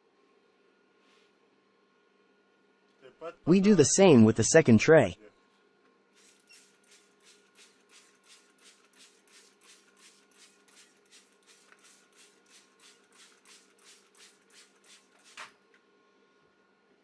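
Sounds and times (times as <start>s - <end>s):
spray bottle hissing: 6.2s - 15.4s.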